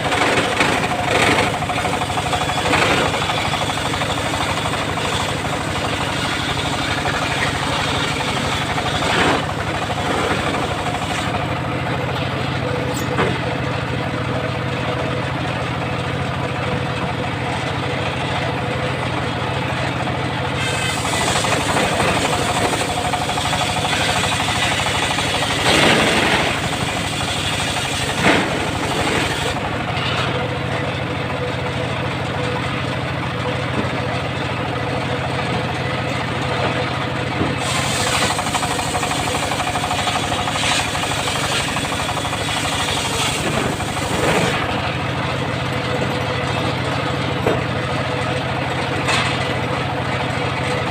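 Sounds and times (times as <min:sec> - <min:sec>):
saw blade cutting wood: 0:00.0 - 0:13.4, 0:19.6 - 0:30.4, 0:37.4 - 0:46.6
sawmill engine hum: 0:00.0 - 0:50.9.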